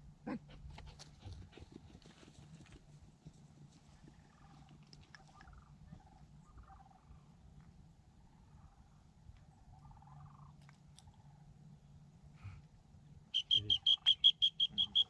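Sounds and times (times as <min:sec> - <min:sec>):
distant animal calls: 0:03.9 - 0:07.6, 0:08.2 - 0:11.6, 0:13.4 - 0:15.0.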